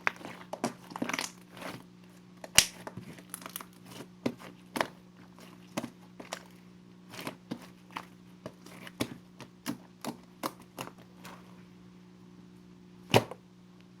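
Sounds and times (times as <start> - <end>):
faint steady hum: 0.0 - 14.0
slime clicking and popping: 2.5 - 2.8.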